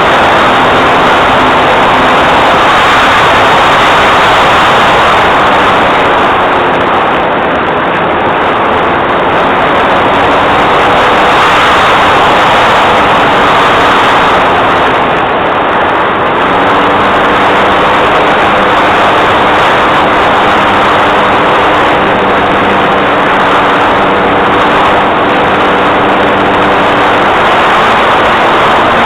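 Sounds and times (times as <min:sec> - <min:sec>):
propeller plane engine drone: 0:00.0 - 0:29.0.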